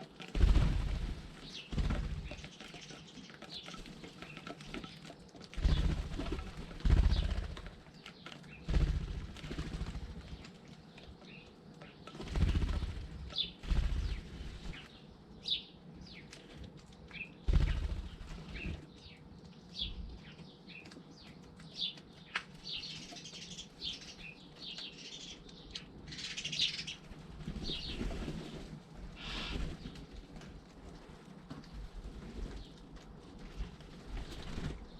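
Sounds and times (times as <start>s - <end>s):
bird wings flapping: 0.0s - 10.6s, 12.1s - 15.0s, 17.4s - 18.9s, 26.7s - 34.9s
birds chirping: 0.0s - 34.9s.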